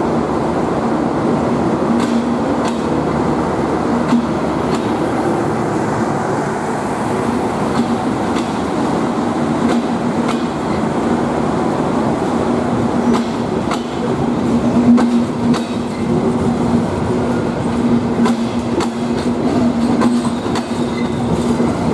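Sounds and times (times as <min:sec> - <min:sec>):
train rumbling on track: 0:00.0 - 0:21.9
wheels clicking over rail joints: 0:17.6 - 0:21.8.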